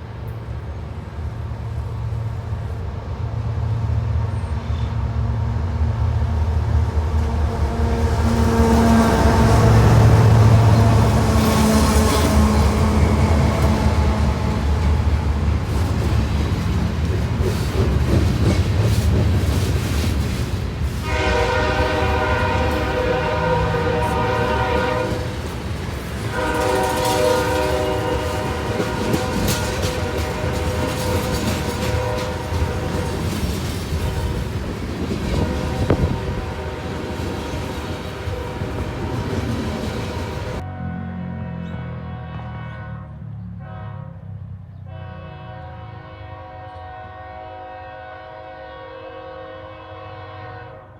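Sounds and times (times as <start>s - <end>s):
train rumble: 0.0s - 50.5s
diesel locomotive engine drone: 0.0s - 50.9s
wheels clicking over rail joints: 10.0s - 40.6s.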